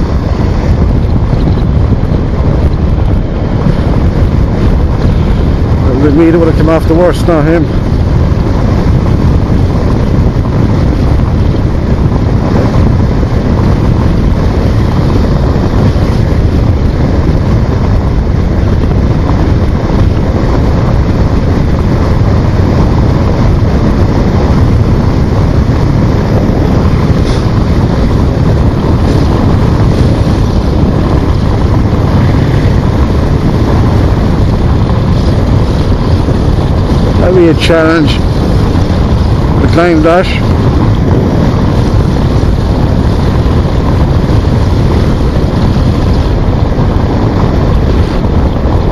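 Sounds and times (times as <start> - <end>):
motorcycle running: 0.0 - 48.9
wind buffeting microphone: 0.0 - 48.9.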